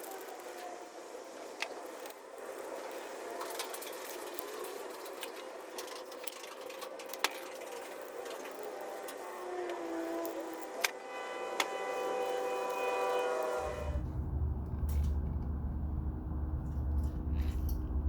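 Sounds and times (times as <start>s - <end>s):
small tools clicking and clinking: 3.4s - 10.9s.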